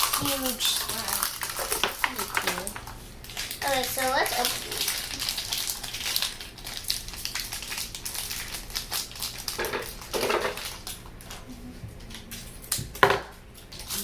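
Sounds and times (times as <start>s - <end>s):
plastic packaging crinkling: 0.0s - 11.4s, 13.6s - 14.0s.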